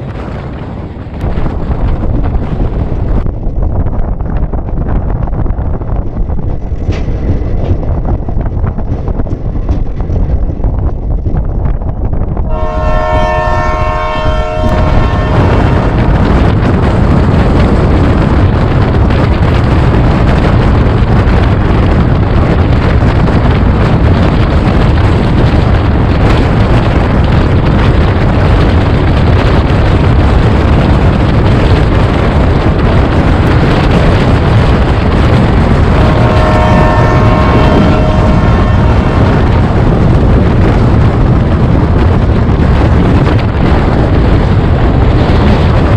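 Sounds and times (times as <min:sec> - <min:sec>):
train running rumble: 0:00.0 - 0:45.9
train horn chord: 0:12.5 - 0:16.3, 0:36.0 - 0:39.8.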